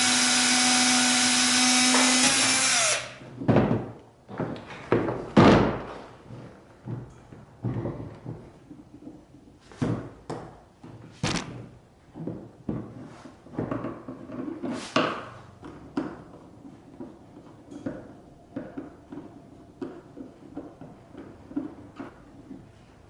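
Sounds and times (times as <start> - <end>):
knocks and thuds of objects: 3.3 - 6.1, 6.8 - 15.3.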